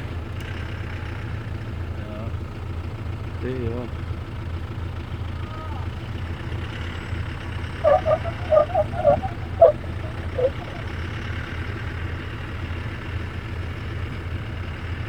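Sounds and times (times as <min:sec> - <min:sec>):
engine running at low revs: 0:07.5 - 0:11.6
short squeaks: 0:07.8 - 0:10.9.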